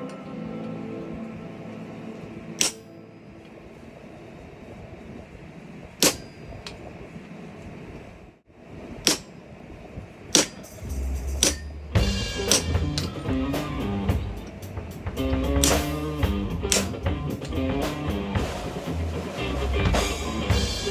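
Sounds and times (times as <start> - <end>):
hammer blows on hot steel: 2.6 - 3.6, 5.8 - 6.9, 8.9 - 20.9
background music with bass and drums: 10.6 - 20.9.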